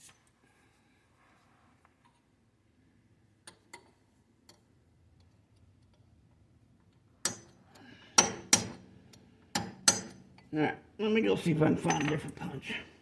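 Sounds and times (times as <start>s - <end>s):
hand tools tapping on metal: 7.2s - 10.5s, 11.8s - 12.6s
hammer striking metal punch: 8.2s - 8.8s, 9.5s - 10.2s.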